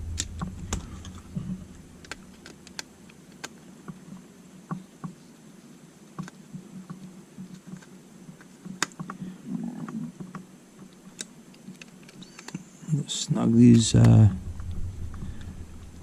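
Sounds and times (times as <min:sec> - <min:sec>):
small plastic parts clicking: 0:02.0 - 0:04.0, 0:06.2 - 0:09.2, 0:10.2 - 0:12.6.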